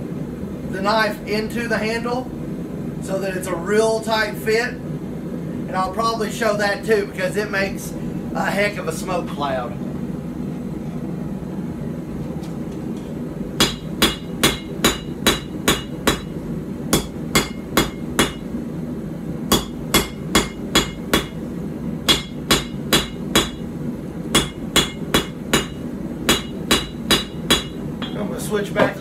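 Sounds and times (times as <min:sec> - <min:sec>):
steady low hum: 0:00.0 - 0:29.0
hammer striking hot steel on anvil: 0:13.6 - 0:18.5, 0:19.5 - 0:21.4, 0:22.1 - 0:23.7, 0:24.3 - 0:28.2.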